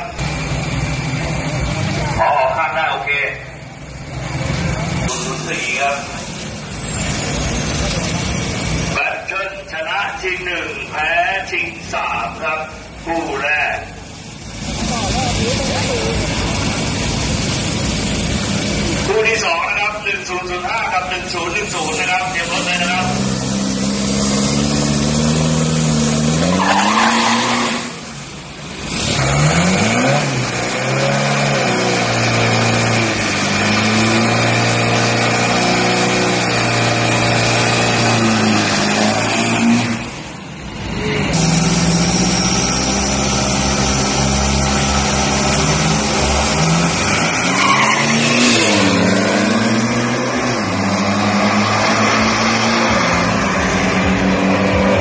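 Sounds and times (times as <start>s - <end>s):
diesel engines revving: 0.0s - 55.0s
tyre squeal: 26.4s - 28.0s, 46.9s - 49.0s.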